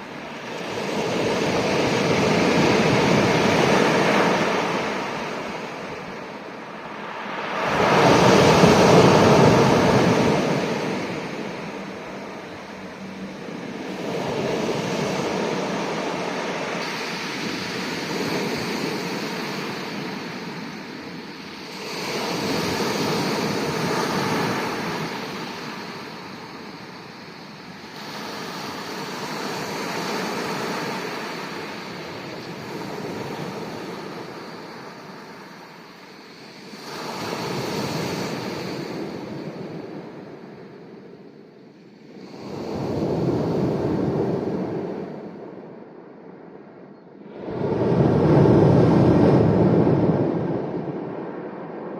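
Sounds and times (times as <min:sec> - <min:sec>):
sea waves breaking on shore: 0:00.0 - 0:41.0.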